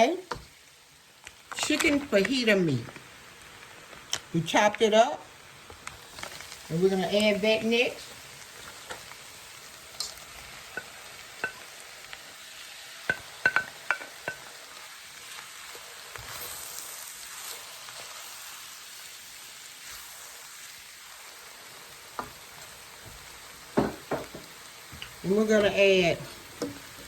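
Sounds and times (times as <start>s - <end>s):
filling sizzling in a pot: 0.0s - 27.0s
spoon knocking against pot: 13.1s - 14.5s, 23.8s - 24.5s.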